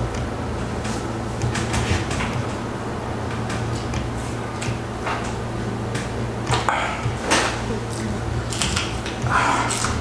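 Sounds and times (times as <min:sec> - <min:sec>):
steady low hum: 0:00.0 - 0:10.0
chewing clicks and smacks: 0:06.0 - 0:10.0.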